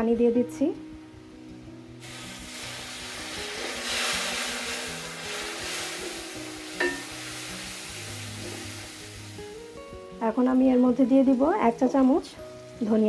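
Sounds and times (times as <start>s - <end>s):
water sizzling in hot oil: 2.0s - 10.0s.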